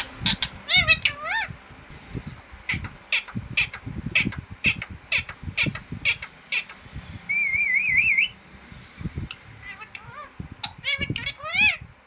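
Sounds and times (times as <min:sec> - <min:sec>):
parrot harsh calls: 0:00.0 - 0:01.5, 0:02.7 - 0:08.4, 0:09.6 - 0:11.8
parrot whistle-like trill: 0:07.3 - 0:08.4.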